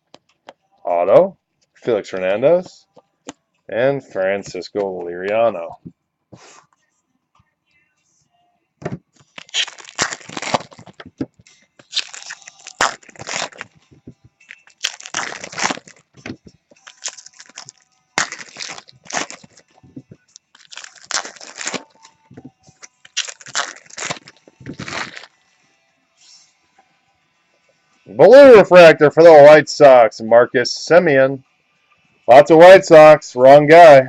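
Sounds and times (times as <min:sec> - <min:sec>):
foil wrappers tearing and crumpling: 0:09.2 - 0:11.2, 0:11.8 - 0:13.8, 0:14.5 - 0:16.2, 0:16.8 - 0:22.2, 0:22.8 - 0:25.4.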